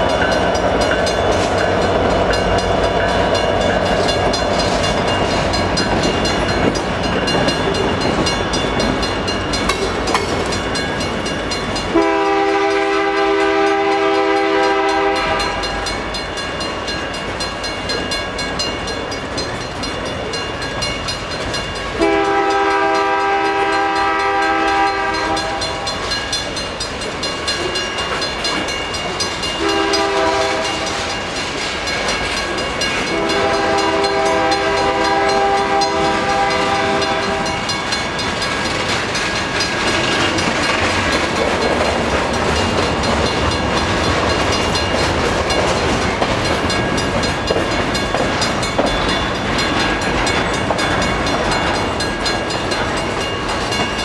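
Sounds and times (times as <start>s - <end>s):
freight train cars clattering on rails: 0.0s - 54.0s
locomotive horn blasts: 11.9s - 15.9s, 22.0s - 25.9s, 29.6s - 31.1s, 33.1s - 37.7s.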